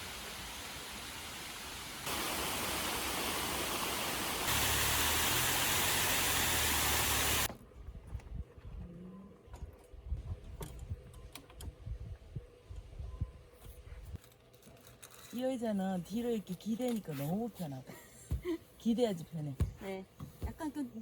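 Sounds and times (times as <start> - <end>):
steady rain hiss: 0.0 - 7.5.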